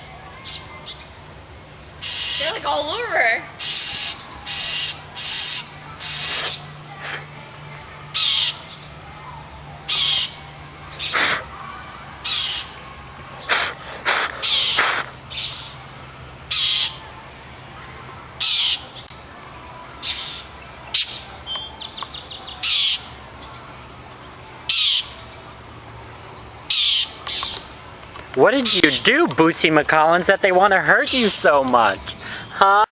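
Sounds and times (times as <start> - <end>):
bird rattling call: 2.0 - 2.6, 3.6 - 6.6, 8.2 - 8.6, 12.2 - 12.7, 13.4 - 15.7, 26.7 - 27.6
jays harsh alarm calls: 2.0 - 7.2, 8.1 - 8.8, 9.9 - 11.5, 12.2 - 12.8, 13.4 - 15.8, 16.5 - 17.0, 18.4 - 19.0, 20.0 - 23.6, 24.7 - 25.3, 26.7 - 27.7, 28.6 - 29.2, 30.9 - 32.6.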